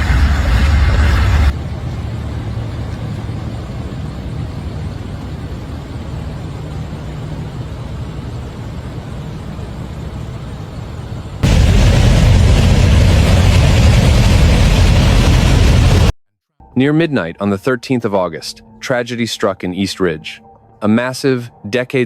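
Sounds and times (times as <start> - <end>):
loud noisy sound: 0.0 - 4.0, 11.4 - 16.1
motor vehicle engine rumbling: 0.0 - 16.1.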